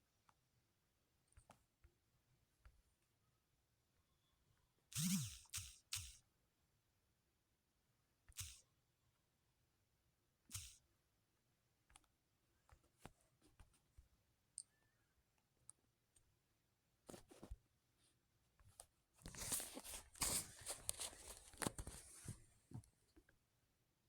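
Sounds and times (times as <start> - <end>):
faint clicks and taps: 1.3 - 2.0, 11.8 - 14.8
rustling crinkling handling noise: 18.7 - 22.8.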